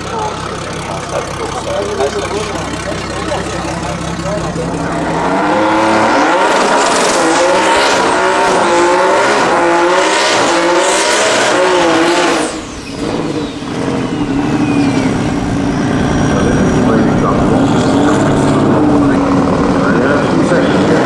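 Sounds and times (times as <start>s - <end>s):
race car engine at full throttle: 0.0s - 21.0s
high whistle falling in pitch: 12.3s - 16.0s.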